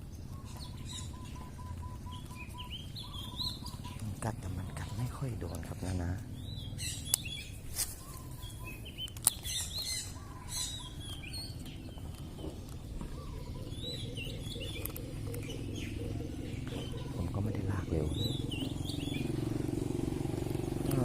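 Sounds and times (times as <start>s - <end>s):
small birds chirping: 0.0s - 21.0s
sharp clicks: 6.2s - 8.0s, 8.9s - 13.0s, 13.8s - 15.9s.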